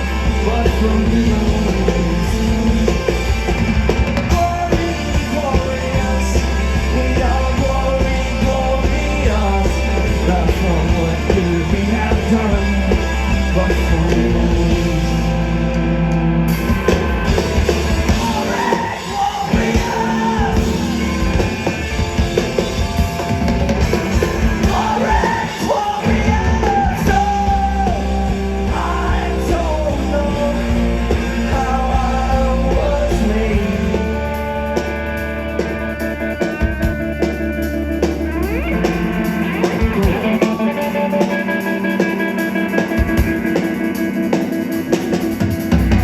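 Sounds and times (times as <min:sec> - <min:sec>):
live rock band playing: 0:00.0 - 0:46.0
person singing: 0:24.1 - 0:34.6.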